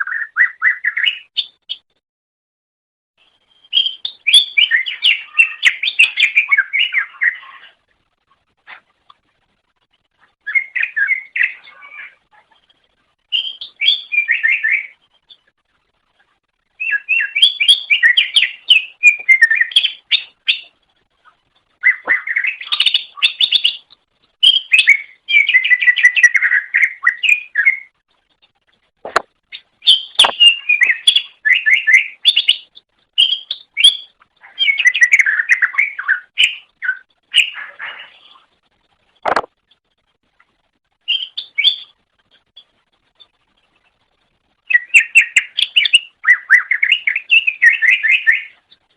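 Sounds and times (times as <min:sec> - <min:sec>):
bird singing chattering phrases: 0:29.5 - 0:38.4.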